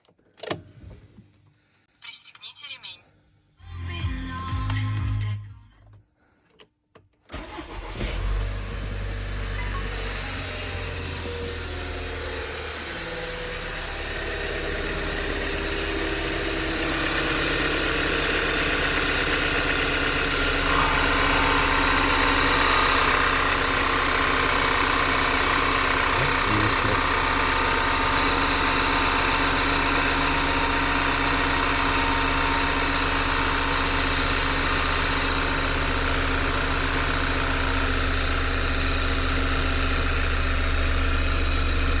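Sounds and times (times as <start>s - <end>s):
higher engine note: 7.3s - 35.5s
car engine idling: 7.3s - 42.0s
engine rattling noise: 7.3s - 42.0s.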